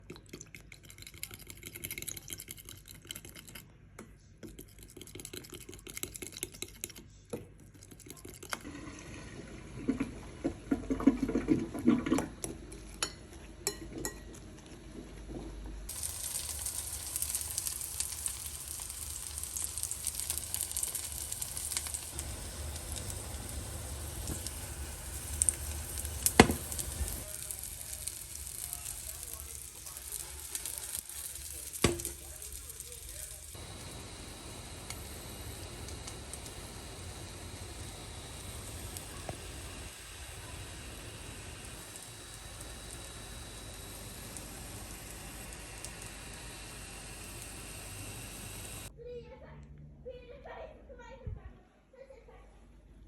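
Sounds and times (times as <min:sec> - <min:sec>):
food sizzling in a pan: 0:15.9 - 0:48.9.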